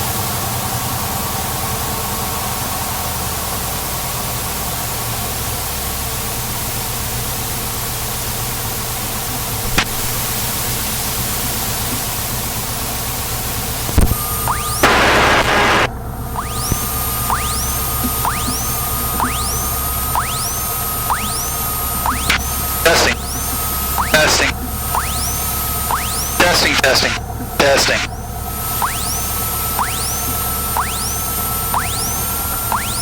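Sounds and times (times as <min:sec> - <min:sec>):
sharp click: 0:09.7 - 0:10.3, 0:13.9 - 0:14.6.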